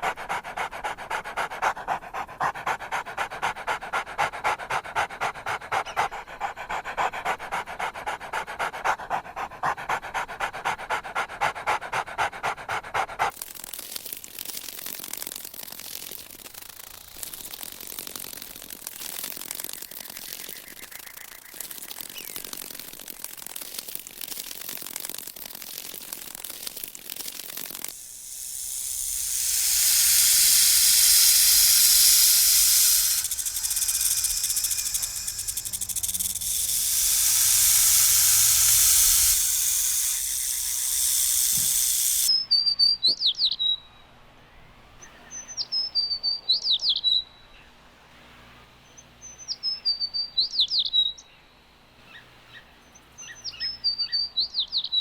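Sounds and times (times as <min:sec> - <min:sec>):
faint rapid clicking: 0:13.3 - 0:42.3
loud steady hiss: 0:27.5 - 0:42.3.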